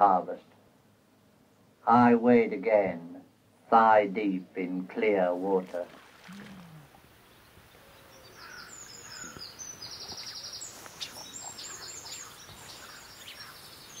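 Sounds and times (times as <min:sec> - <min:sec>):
faint outdoor hiss: 0:00.0 - 0:14.0
small birds chirping and trilling: 0:06.2 - 0:14.0.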